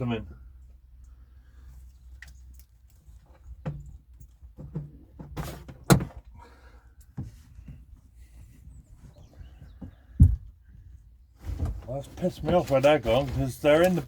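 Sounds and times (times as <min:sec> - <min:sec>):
knocks of objects being moved: 0:03.2 - 0:06.3
heavy thuds: 0:09.8 - 0:10.8.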